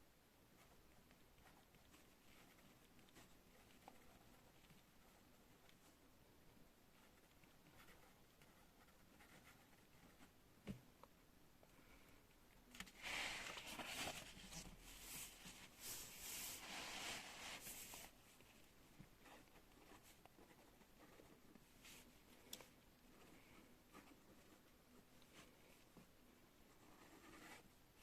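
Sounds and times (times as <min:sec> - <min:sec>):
pen scratching on paper: 0:26.7 - 0:27.6.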